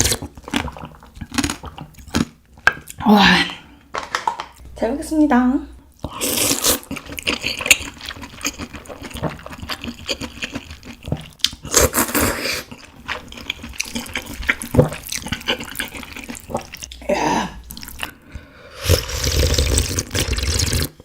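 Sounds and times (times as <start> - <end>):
wet chewing and smacking: 0.0 - 3.0, 6.0 - 21.0
slurping broth: 6.0 - 11.0, 11.6 - 21.0.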